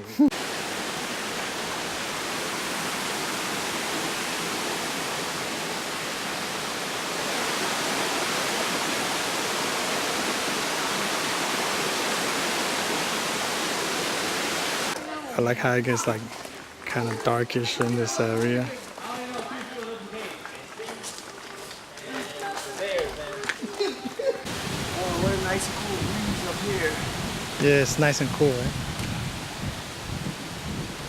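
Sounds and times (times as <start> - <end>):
rushing stream water: 0.3 - 15.0, 24.4 - 31.0.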